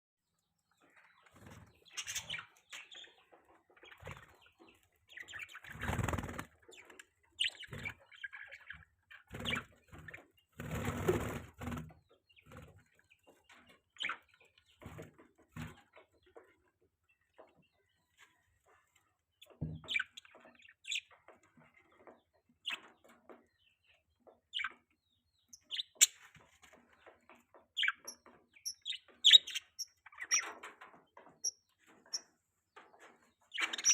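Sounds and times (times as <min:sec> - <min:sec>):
budgerigars chirping: 0:00.9 - 0:06.8, 0:27.8 - 0:30.6, 0:33.5 - 0:33.9.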